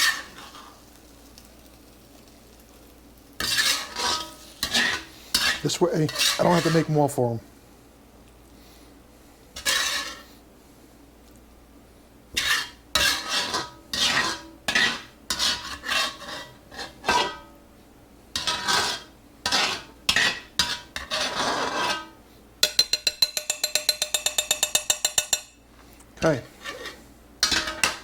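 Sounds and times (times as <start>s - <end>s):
metal utensil scraping cast iron pan: 0.0s - 0.8s, 3.4s - 7.1s, 9.6s - 10.3s, 12.4s - 17.5s, 18.4s - 25.4s, 26.5s - 28.0s.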